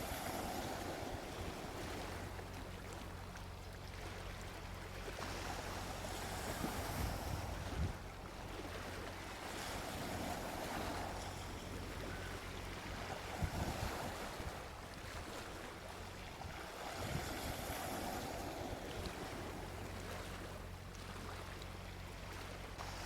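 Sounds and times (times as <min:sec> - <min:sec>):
sea waves washing onto beach: 0:00.0 - 0:23.0.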